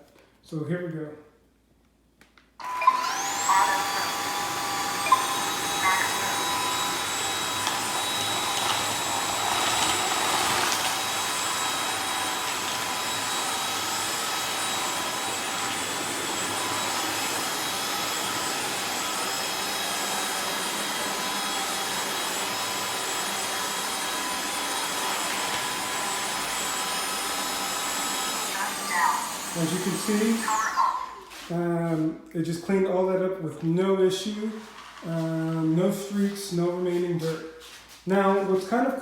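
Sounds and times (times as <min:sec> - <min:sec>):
wet-dry vacuum whining: 0:02.6 - 0:32.1.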